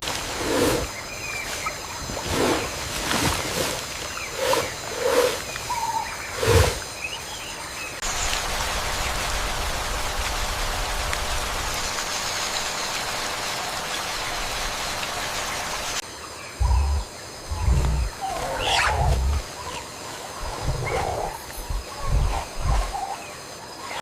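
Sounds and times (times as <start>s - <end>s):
steady rain falling: 8.0s - 16.0s
loud animal call: 16.6s - 19.5s.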